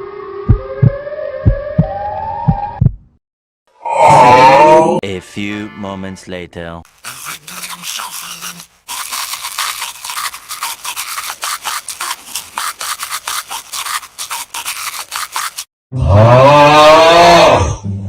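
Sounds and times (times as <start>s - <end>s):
scratchy scrubbing strokes: 6.9s - 15.7s.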